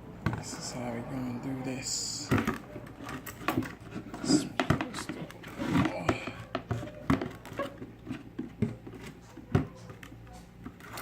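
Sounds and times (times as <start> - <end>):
objects clicking and knocking: 2.2 - 11.0.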